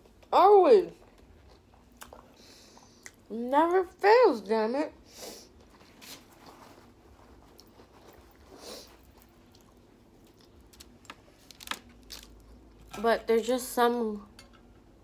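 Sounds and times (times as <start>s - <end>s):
quiet chewing: 1.0s - 3.2s, 5.6s - 11.5s.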